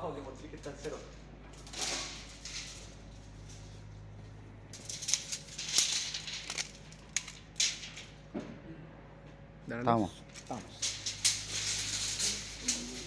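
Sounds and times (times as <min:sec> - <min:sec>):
low steady hum: 0:00.0 - 0:13.0
handling rustles and clicks: 0:00.6 - 0:08.2.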